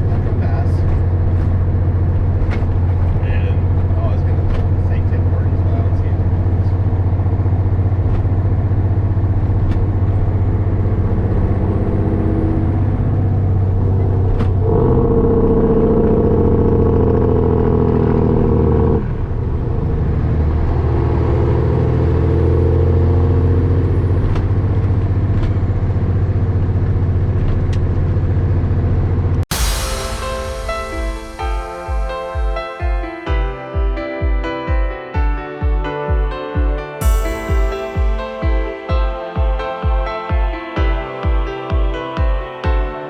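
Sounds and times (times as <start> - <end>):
diesel truck engine running: 0.0 - 29.8.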